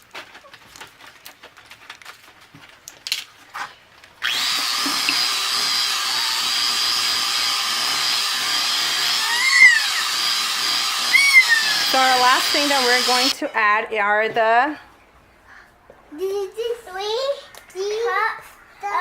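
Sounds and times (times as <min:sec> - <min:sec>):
electric mixer whining: 0:04.2 - 0:13.4.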